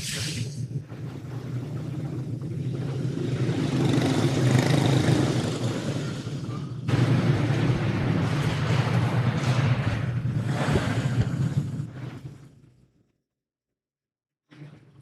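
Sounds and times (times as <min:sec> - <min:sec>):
kart engines running: 0:01.0 - 0:07.6.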